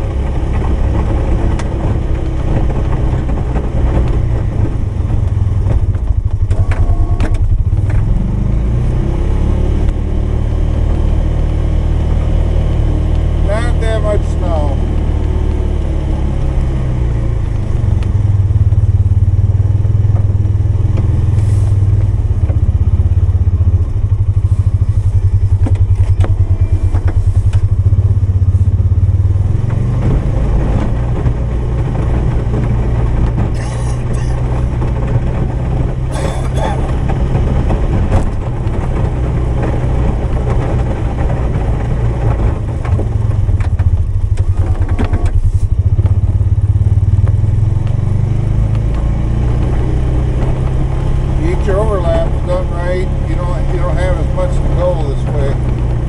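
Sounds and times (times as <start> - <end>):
knocks and rattles: 0.0 - 8.2, 25.0 - 46.6
engine revving under load: 0.0 - 56.0.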